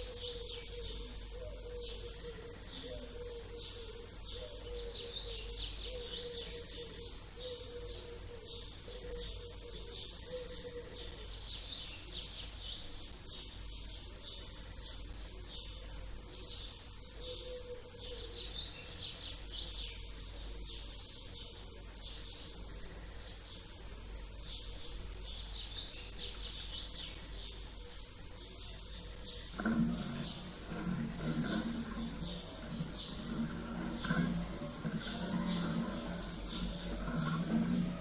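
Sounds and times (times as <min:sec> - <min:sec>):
songbirds chirping: 0:00.0 - 0:38.0
low background rumble: 0:18.4 - 0:38.0.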